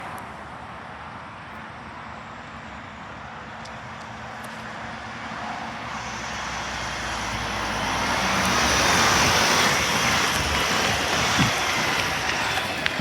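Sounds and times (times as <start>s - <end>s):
road noise: 0.0s - 13.0s
garbage truck engine: 6.1s - 13.0s.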